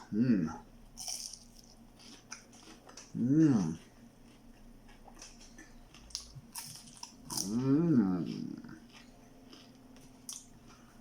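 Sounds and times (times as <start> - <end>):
chewing crispy food: 1.0 - 11.0
person humming mmm: 3.2 - 3.8, 7.3 - 8.8.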